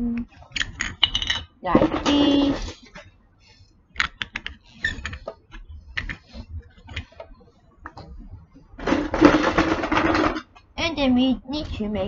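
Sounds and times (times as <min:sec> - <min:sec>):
plastic bricks clattering: 0:08.8 - 0:10.5.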